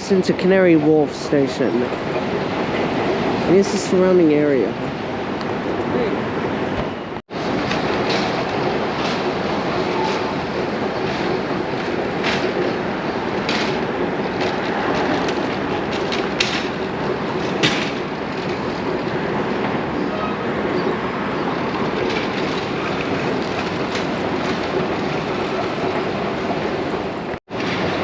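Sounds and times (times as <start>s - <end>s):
street traffic roar: 0.0s - 28.0s
sharp clacks and knocks: 7.5s - 19.8s.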